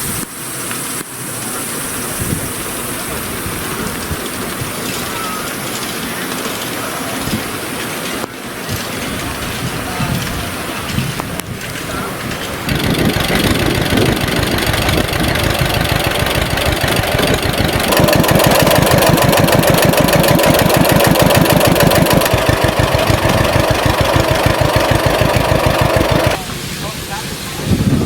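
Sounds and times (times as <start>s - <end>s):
engine running: 11.6s - 26.5s.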